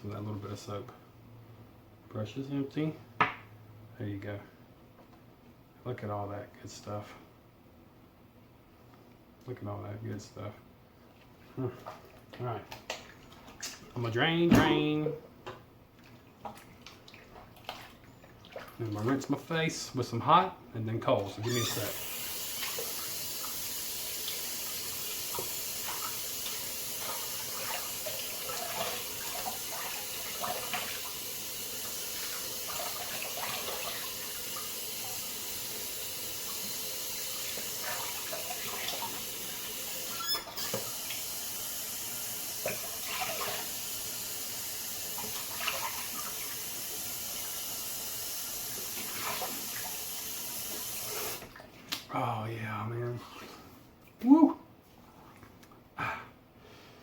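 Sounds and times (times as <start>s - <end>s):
water splashing: 16.0s - 19.4s, 21.5s - 31.2s, 31.8s - 35.8s, 37.4s - 39.6s, 42.6s - 43.7s, 45.1s - 46.6s, 48.7s - 50.0s
tap running into a sink: 21.5s - 41.4s, 42.4s - 43.9s.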